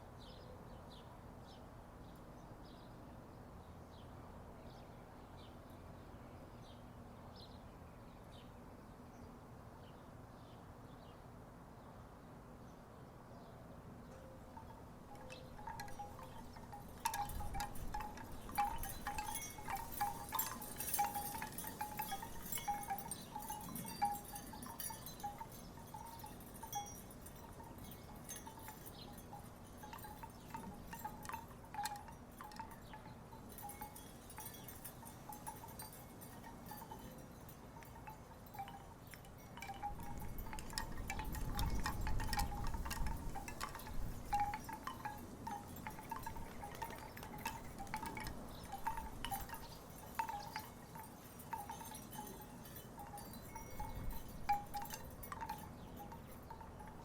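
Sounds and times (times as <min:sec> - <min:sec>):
wooden wind chimes clacking: 0:14.1 - 0:57.0.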